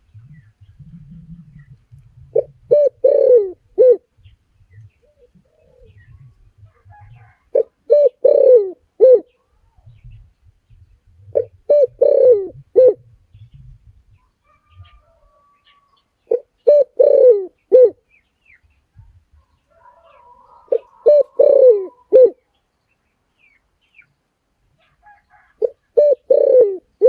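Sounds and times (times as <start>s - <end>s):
dove cooing: 0.0s - 4.1s, 4.8s - 9.6s, 11.2s - 13.8s, 14.5s - 18.0s, 19.7s - 22.4s, 25.0s - 27.0s.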